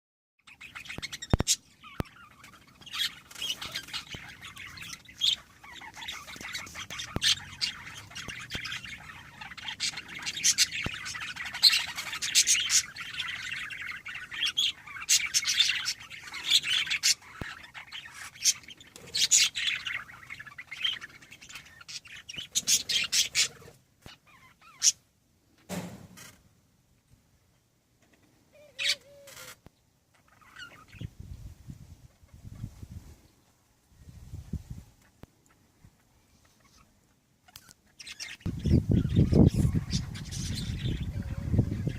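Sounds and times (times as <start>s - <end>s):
birds chirping: 0.4s - 26.5s, 28.0s - 41.9s.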